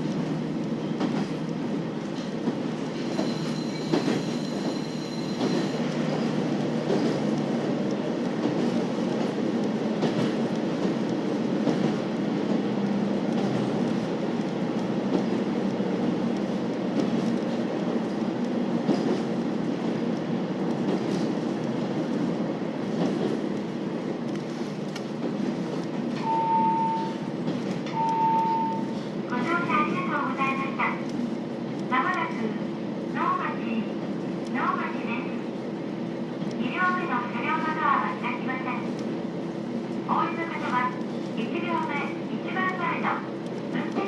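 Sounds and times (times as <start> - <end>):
rail clicks: 0.0 - 44.0
train wheels rolling: 0.0 - 44.0.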